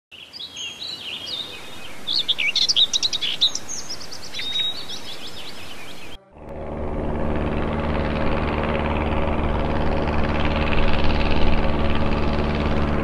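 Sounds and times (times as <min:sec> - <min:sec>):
small birds chirping and trilling: 0:00.2 - 0:06.2.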